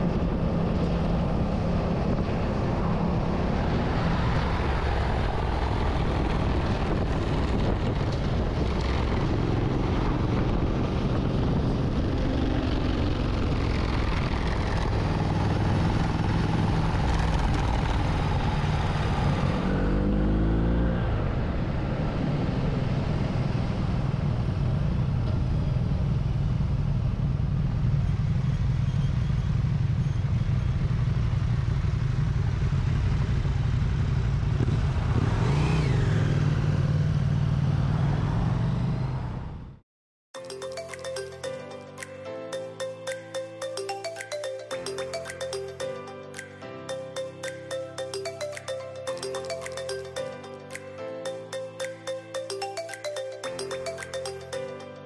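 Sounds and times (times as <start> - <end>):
wind and road noise: 0.0 - 39.8.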